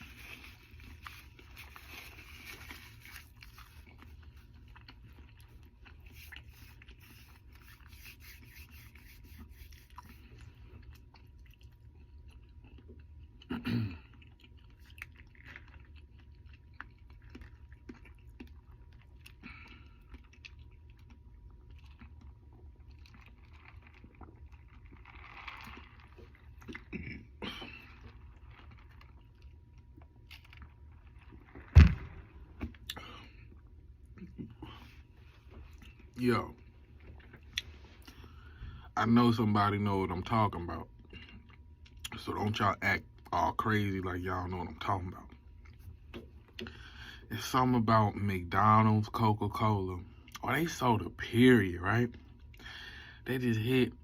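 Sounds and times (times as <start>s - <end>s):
person chewing food: 0.0s - 38.8s.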